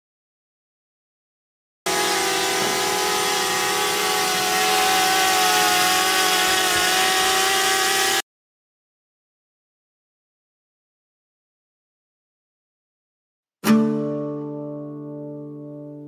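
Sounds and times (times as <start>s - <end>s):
drone propellers whirring: 1.9s - 8.2s.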